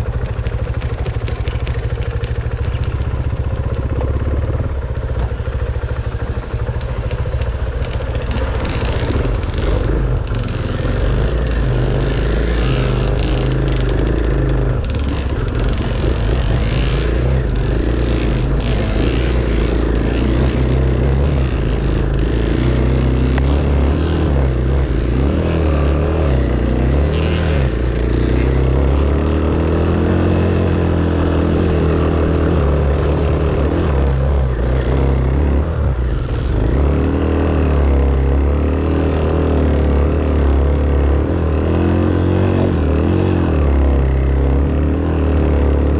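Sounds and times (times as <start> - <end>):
dirt bike engine revving: 0.0 - 45.9
knocks and clatter: 0.1 - 24.0.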